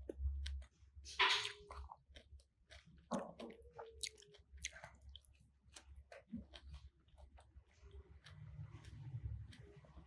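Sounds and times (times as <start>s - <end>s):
wet chewing mouth sounds: 0.0s - 10.0s.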